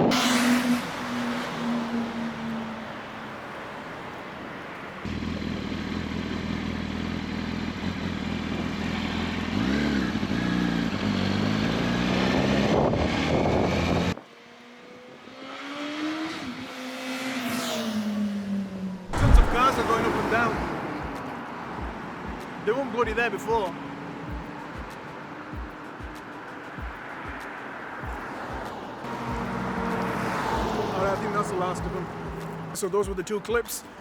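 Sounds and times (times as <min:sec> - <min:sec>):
motorcycle passing by: 0:00.0 - 0:32.8
motorcycle engine accelerating: 0:05.1 - 0:14.2, 0:19.0 - 0:20.1.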